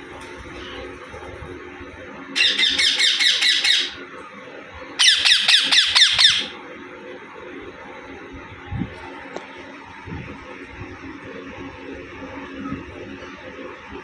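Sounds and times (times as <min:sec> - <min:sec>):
parrot screeching: 0:02.4 - 0:04.0, 0:05.0 - 0:06.6.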